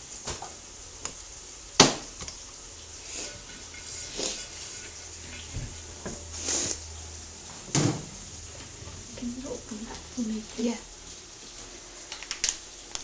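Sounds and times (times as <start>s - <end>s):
containers and utensils rustling: 3.0s - 10.7s.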